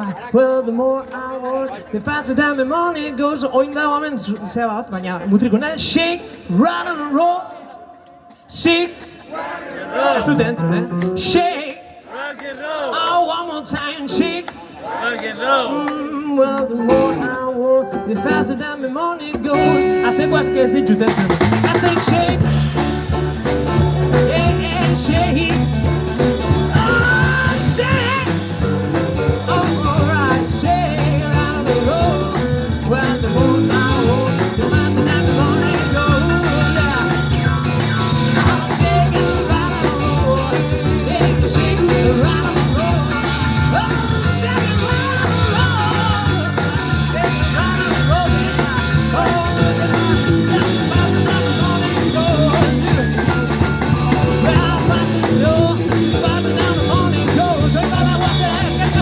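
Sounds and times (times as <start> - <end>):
bass: 16.6 - 59.0
rock band playing: 16.6 - 59.0
lead guitar bending notes: 16.8 - 18.6, 19.5 - 59.0
drums beating: 20.9 - 59.0.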